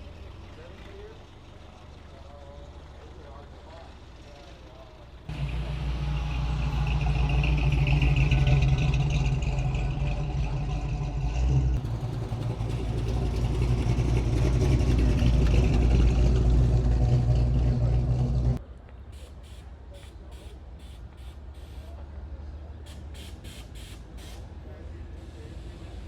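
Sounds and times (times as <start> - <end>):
car engine running: 0.0 - 18.6.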